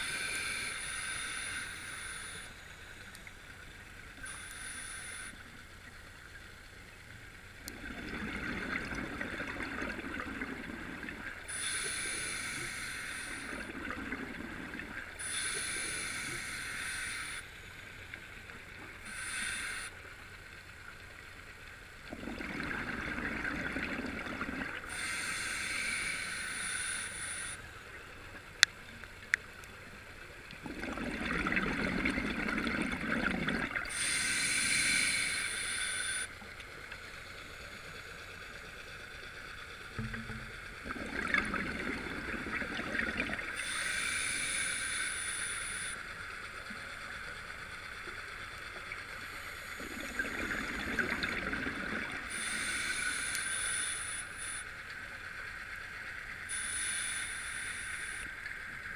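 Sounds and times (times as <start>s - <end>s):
regulator hissing inhalations: 0.0s - 3.2s, 4.1s - 5.7s, 11.4s - 13.8s, 15.2s - 17.9s, 19.0s - 20.0s, 24.7s - 27.8s, 33.8s - 36.4s, 43.5s - 46.4s, 52.2s - 54.9s, 56.4s - 58.6s
gurgling exhaled bubbles: 7.7s - 11.3s, 13.4s - 15.1s, 22.1s - 25.0s, 30.6s - 34.0s, 40.0s - 43.7s, 49.8s - 52.6s.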